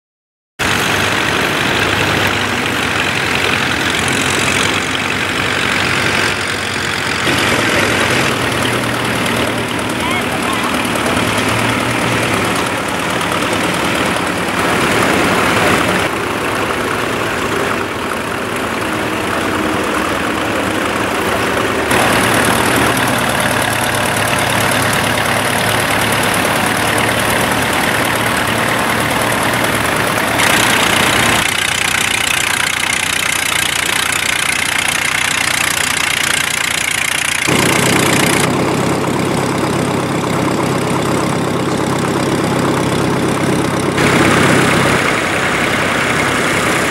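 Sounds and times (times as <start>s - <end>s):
tractor engines running: 0.6s - 46.9s.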